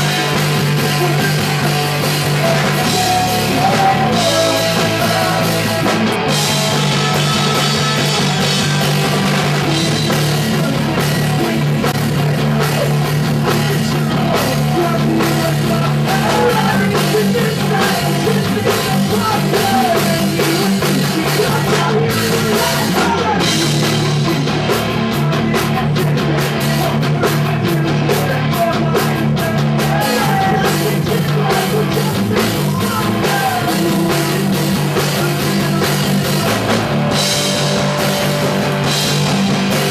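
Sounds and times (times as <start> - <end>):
live punk rock band: 0.0 - 39.9
person singing: 0.0 - 39.9.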